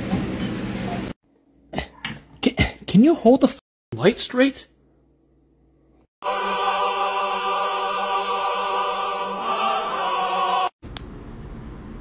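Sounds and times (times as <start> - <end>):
operatic choir singing: 6.2 - 10.8.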